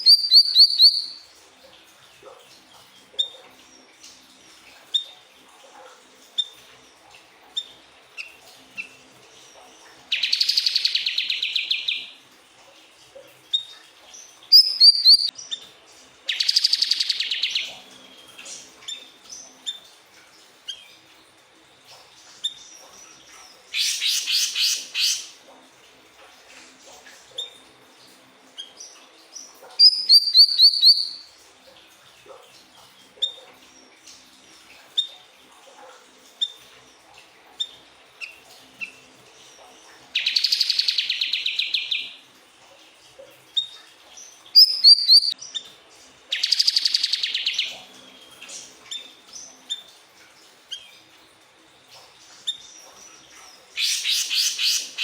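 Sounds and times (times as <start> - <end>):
bird chirping and trilling: 0.0 - 1.2, 10.1 - 12.1, 13.5 - 15.6, 16.3 - 17.8, 22.5 - 25.4, 28.6 - 31.3, 40.2 - 42.2, 43.6 - 45.6, 46.3 - 49.9, 52.5 - 55.0.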